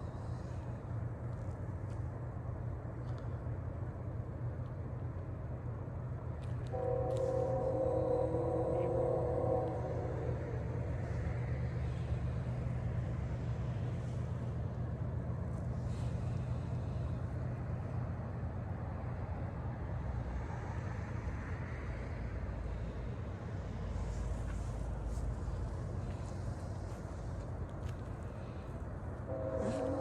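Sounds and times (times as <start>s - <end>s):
train rumbling by: 0.0s - 30.0s
locomotive horn chord: 6.6s - 12.1s, 29.2s - 30.0s.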